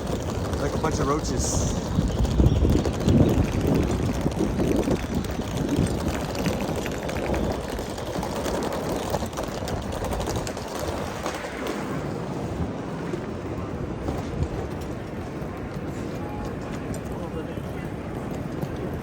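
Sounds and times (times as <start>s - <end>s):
busy terminal rumble: 0.0s - 19.0s.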